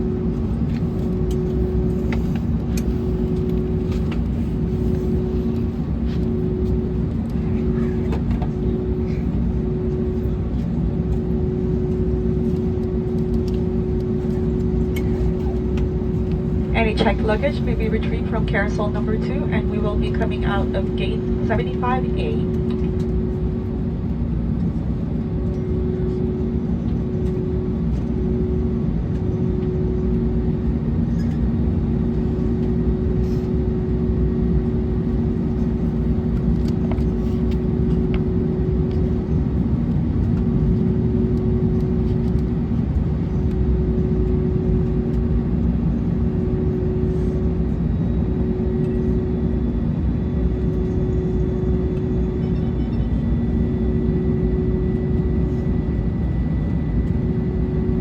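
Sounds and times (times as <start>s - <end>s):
cabin airflow rumble: 0.0s - 25.0s
aircraft engines idling: 0.0s - 29.6s, 30.2s - 58.0s.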